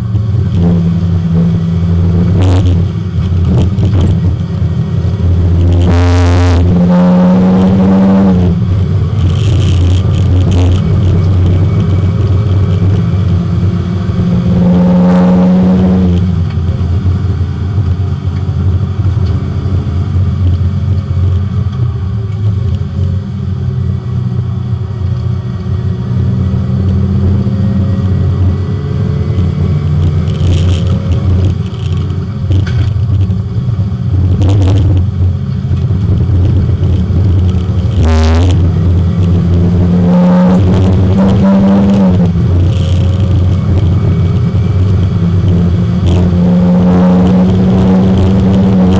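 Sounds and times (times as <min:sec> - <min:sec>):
race car engine from inside: 0:00.0 - 0:48.9
short clatters: 0:30.0 - 0:33.4, 0:40.6 - 0:46.3.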